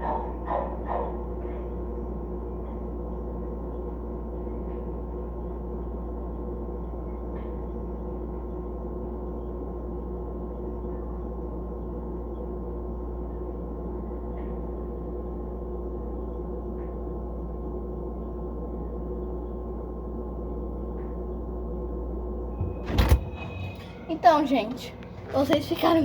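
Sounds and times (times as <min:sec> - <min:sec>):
refrigerator humming: 0:00.0 - 0:26.0
fridge door opening thump: 0:22.6 - 0:23.8.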